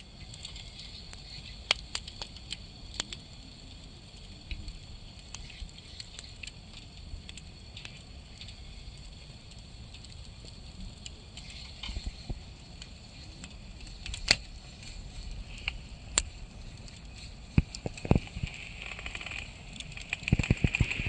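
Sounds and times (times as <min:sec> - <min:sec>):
fire crackles and pops: 0:00.0 - 0:21.0
wood fire rumble and hiss: 0:00.0 - 0:21.0.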